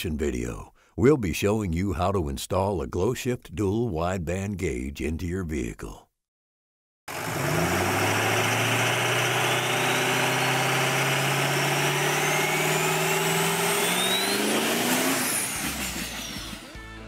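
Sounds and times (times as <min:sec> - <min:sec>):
car engine revving: 0:07.1 - 0:16.7
high whine: 0:11.9 - 0:16.9.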